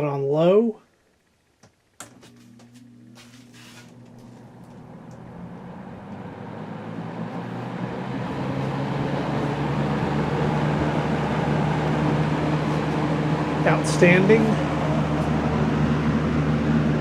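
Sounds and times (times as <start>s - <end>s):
air noise of fan blades: 0.0s - 17.0s
box fan motor hum: 1.0s - 17.0s.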